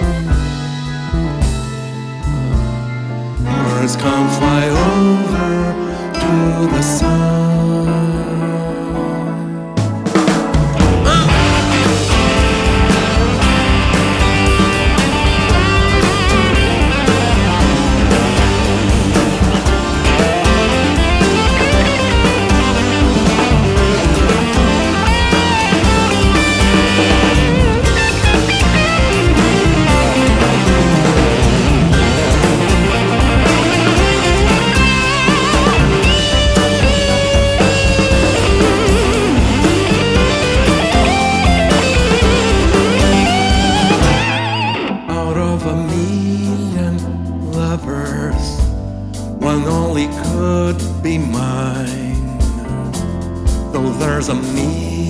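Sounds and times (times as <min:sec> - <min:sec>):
prog rock band playing: 0:00.0 - 0:55.0
steady drum kit: 0:00.0 - 0:55.0
lead line with bending notes: 0:10.0 - 0:45.8.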